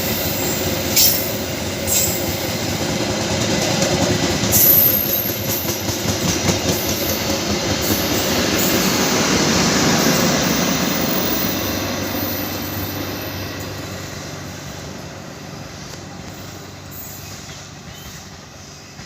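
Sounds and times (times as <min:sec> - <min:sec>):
train wheels clattering over rail joints: 0:16.2 - 0:19.0.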